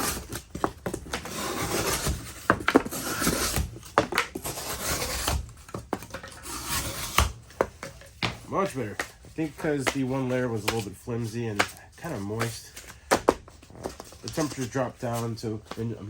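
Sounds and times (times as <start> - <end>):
knife slicing cardboard: 0.0 - 7.8, 8.7 - 13.4.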